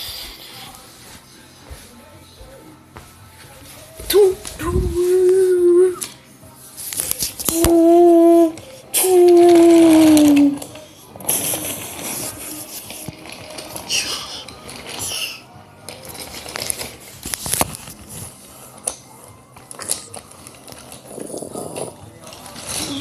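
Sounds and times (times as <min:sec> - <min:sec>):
toy trains clattering on track: 0:08.6 - 0:19.0, 0:19.6 - 0:23.0.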